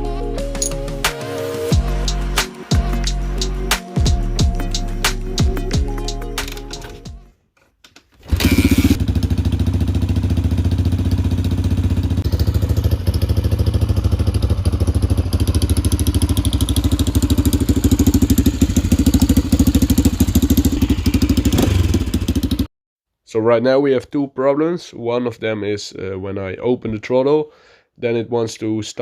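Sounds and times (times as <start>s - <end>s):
motorcycle engine idling: 8.3s - 22.7s.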